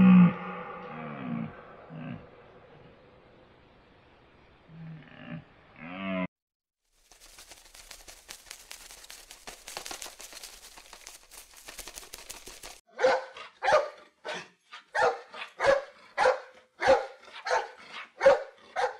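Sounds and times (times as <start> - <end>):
faint hiss with crackles: 6.9 - 12.8
dog barking: 12.9 - 18.9.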